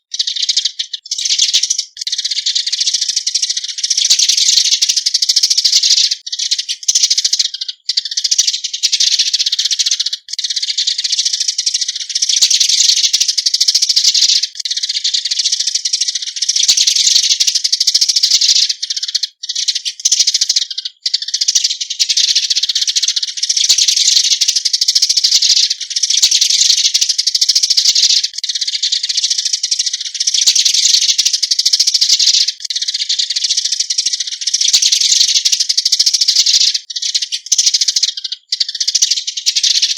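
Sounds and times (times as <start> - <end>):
sparrow flock chattering: 0.0 - 39.9.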